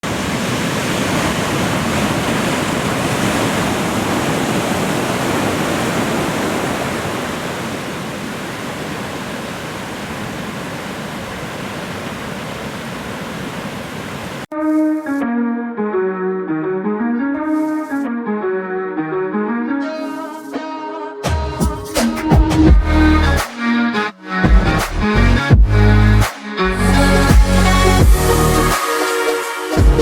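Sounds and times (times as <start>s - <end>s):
ocean waves breaking: 0.0s - 14.5s
music with guitar and keys: 14.5s - 30.0s.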